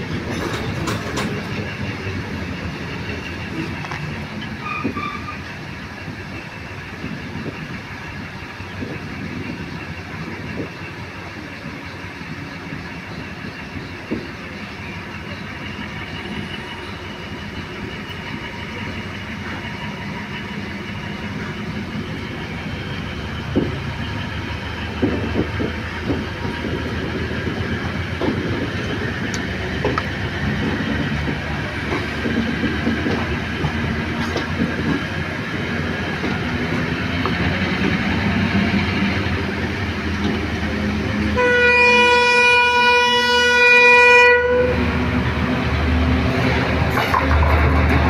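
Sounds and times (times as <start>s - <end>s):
wheels clacking over rail joints: 0.0s - 5.8s, 13.3s - 41.4s, 44.8s - 48.0s
train wheels rumbling on rail: 0.0s - 48.0s.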